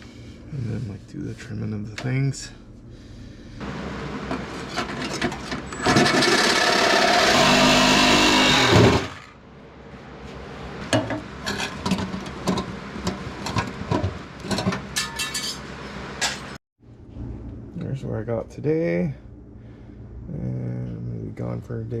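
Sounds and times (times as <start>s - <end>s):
power tool hissing on sheet metal: 5.9s - 9.3s.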